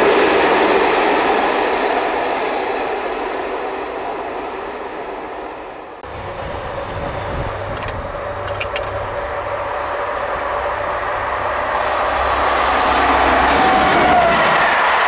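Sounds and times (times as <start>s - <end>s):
electric locomotive running: 5.6s - 15.0s
steady hum: 6.0s - 13.4s
light clicks: 7.6s - 9.2s.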